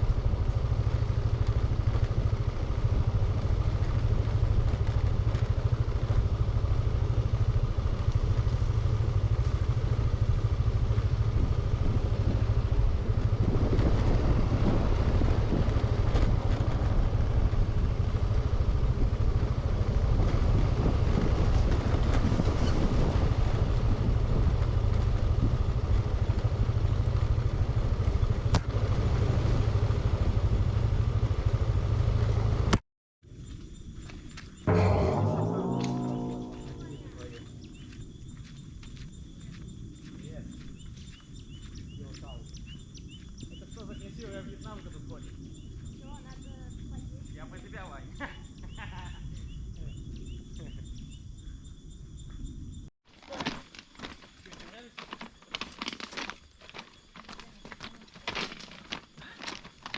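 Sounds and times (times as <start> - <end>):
wind rumble on microphone: 0.0 - 30.7
motorbike engine: 0.0 - 32.8.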